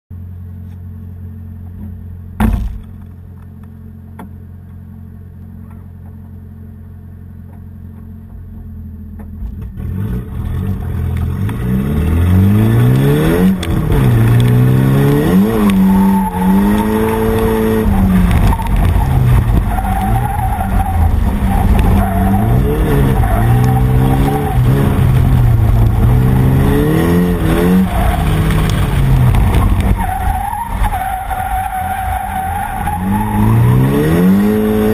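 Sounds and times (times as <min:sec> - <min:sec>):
car engine idling and revving: 0:00.1 - 0:34.9
tyre squeal: 0:15.0 - 0:26.8, 0:29.4 - 0:34.9.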